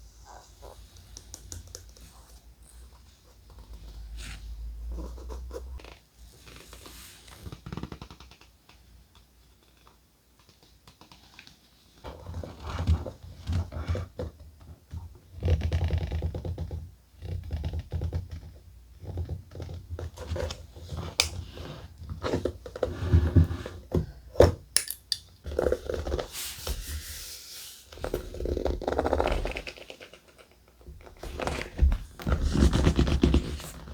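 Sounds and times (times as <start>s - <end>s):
paper rustling and scraping: 31.2s - 33.9s.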